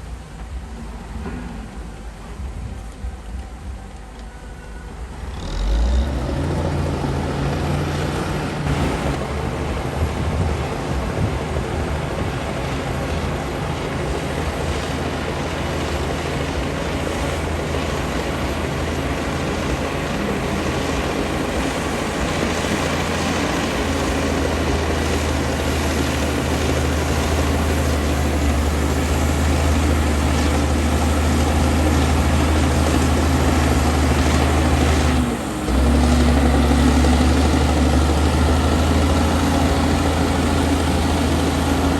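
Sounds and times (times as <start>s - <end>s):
bulldozer diesel engine droning: 0.0s - 41.9s.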